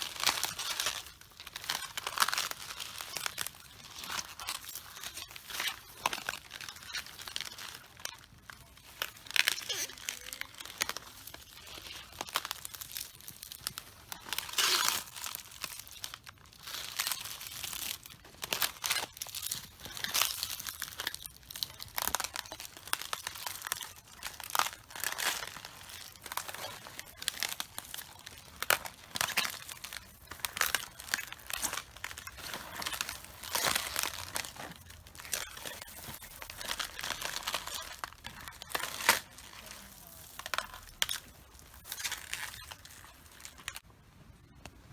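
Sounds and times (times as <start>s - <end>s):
feet crushing cabbages: 9.0s - 43.8s.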